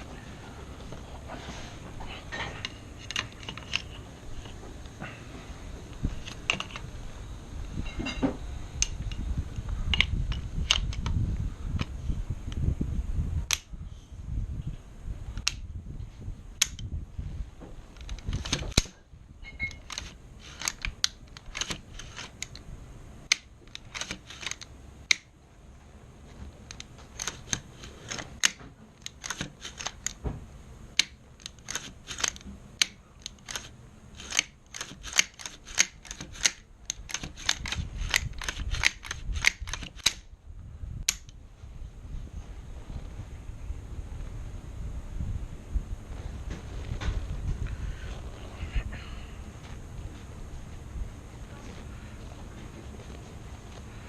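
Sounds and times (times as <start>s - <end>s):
rifle parts clicking and clacking: 2.4s - 4.6s, 6.2s - 6.9s, 17.9s - 22.6s, 23.3s - 25.3s, 26.7s - 30.2s, 31.0s - 40.3s.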